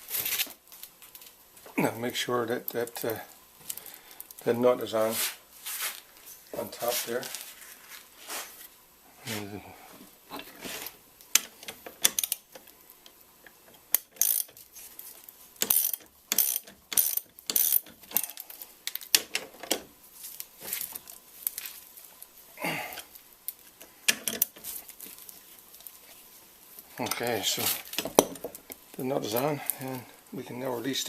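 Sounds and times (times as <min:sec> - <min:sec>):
ratchet wrench clicking: 0:11.4 - 0:12.4, 0:13.9 - 0:14.6, 0:15.6 - 0:19.4.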